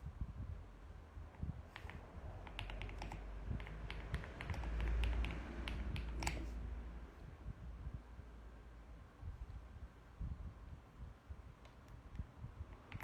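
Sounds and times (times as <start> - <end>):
mechanical keyboard typing: 1.7 - 6.6, 12.7 - 13.0.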